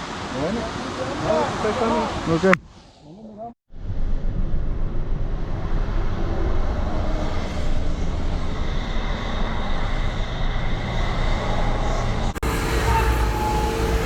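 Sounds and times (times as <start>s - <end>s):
engine running: 11.8s - 14.0s.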